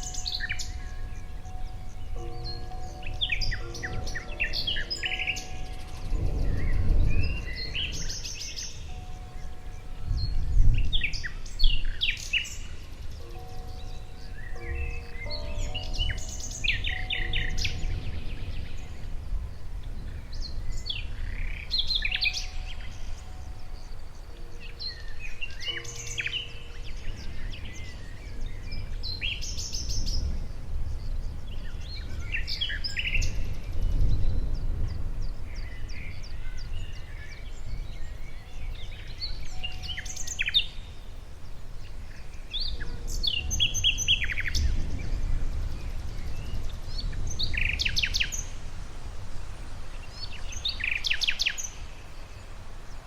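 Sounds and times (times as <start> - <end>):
steady low rumble: 0.0 - 40.0
songbirds singing: 0.0 - 53.0.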